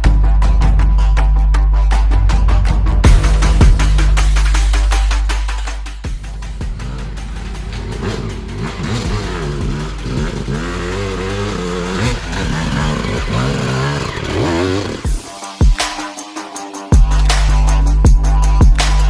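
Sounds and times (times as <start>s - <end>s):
dirt bike engine revving: 6.2s - 16.0s.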